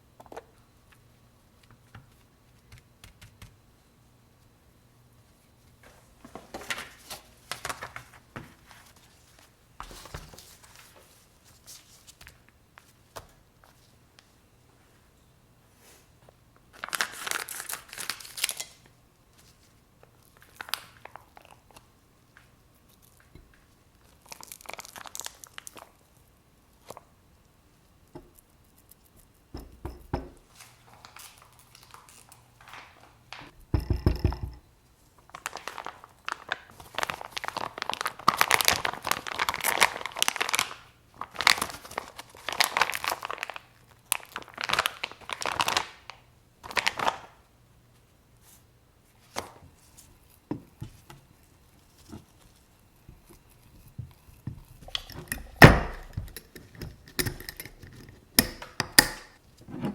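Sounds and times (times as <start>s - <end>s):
plastic packaging crinkling and tearing: 6.4s - 9.1s, 16.7s - 18.9s, 20.2s - 21.8s, 24.0s - 26.0s, 30.6s - 33.4s, 35.3s - 47.4s.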